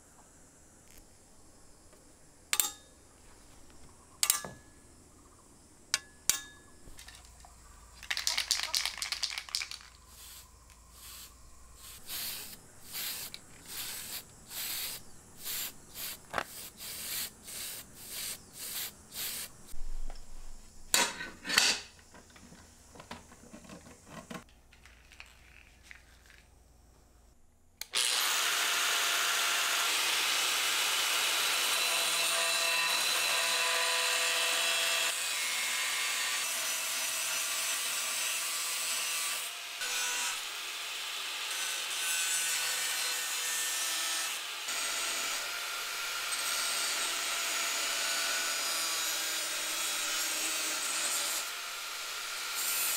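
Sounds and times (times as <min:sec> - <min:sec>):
hand tool strokes: 0:09.8 - 0:19.6
power tool running: 0:27.9 - 0:32.2.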